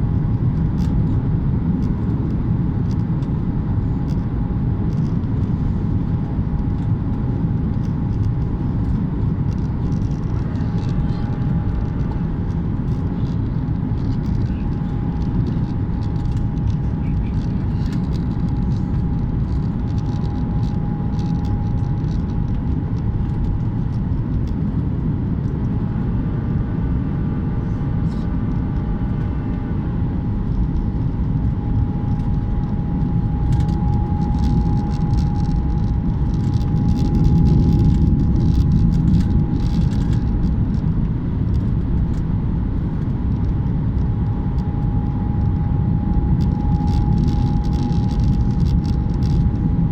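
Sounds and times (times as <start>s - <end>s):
engine and airflow rumble: 0.0s - 49.9s
thin steady whine: 0.0s - 49.9s.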